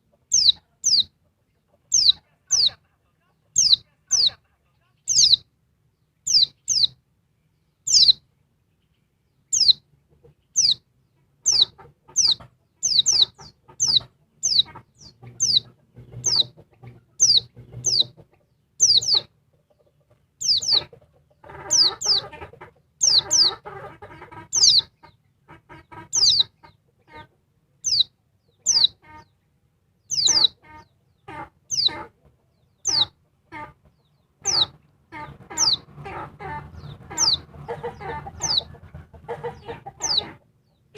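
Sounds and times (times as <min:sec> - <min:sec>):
bird low rough calls: 0:34.4 - 0:40.4
bird high sliding calls: 0:37.1 - 0:37.8.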